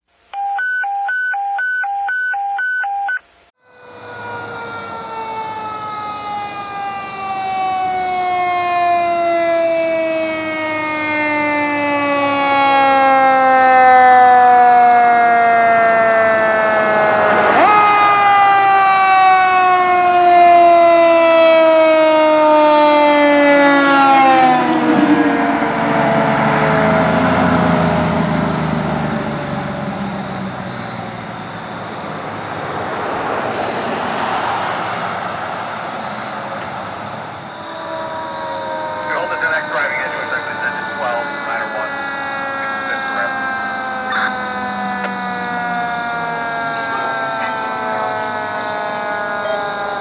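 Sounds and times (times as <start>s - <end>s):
mechanical siren wailing: 3.1s - 33.7s, 35.8s - 50.0s
truck engine running: 23.5s - 49.6s.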